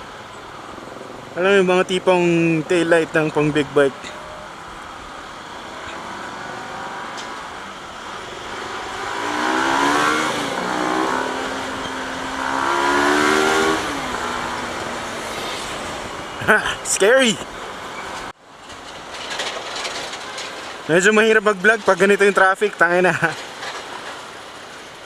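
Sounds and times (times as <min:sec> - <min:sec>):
riding wind noise: 0:00.0 - 0:25.0
motorcycle engine accelerating: 0:05.7 - 0:16.5.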